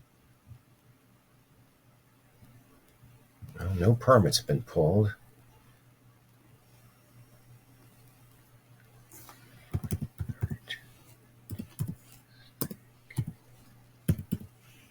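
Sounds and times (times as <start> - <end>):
faint low hum: 0.0 - 14.9
computer keyboard typing: 9.7 - 10.7, 11.5 - 13.4, 14.1 - 14.5.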